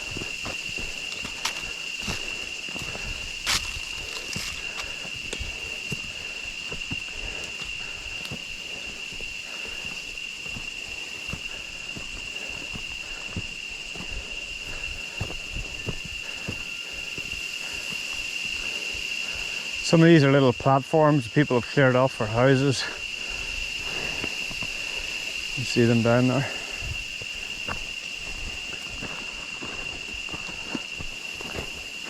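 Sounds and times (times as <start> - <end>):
footsteps on trail: 0.0 - 20.2, 22.1 - 32.0.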